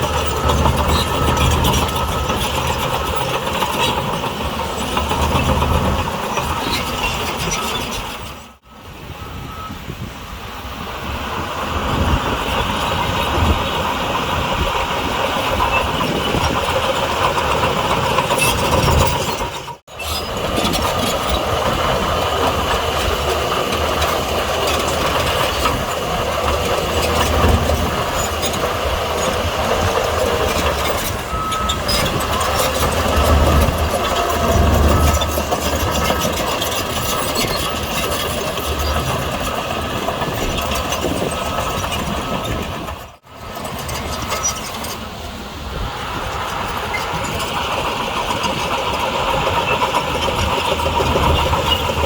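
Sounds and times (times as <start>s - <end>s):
metallic clatter of tracks: 0.0s - 8.6s, 11.2s - 52.0s
bulldozer engine running: 0.0s - 52.0s.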